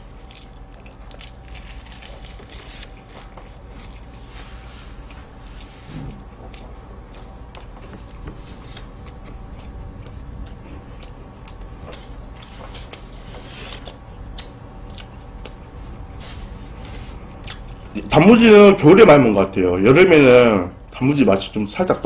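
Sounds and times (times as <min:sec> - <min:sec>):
person chewing with mouth clicks: 0:00.0 - 0:04.1, 0:05.0 - 0:17.9
low room hum: 0:00.0 - 0:22.0.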